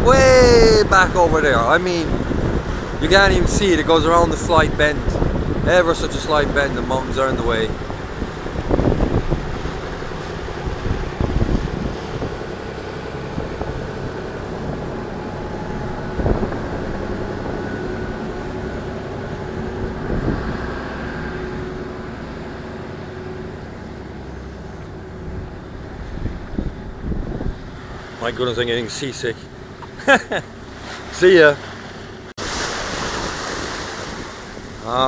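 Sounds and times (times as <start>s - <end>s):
wind noise on microphone: 0.0s - 22.0s, 25.2s - 28.0s, 32.4s - 35.0s
boat engine running: 0.0s - 35.0s.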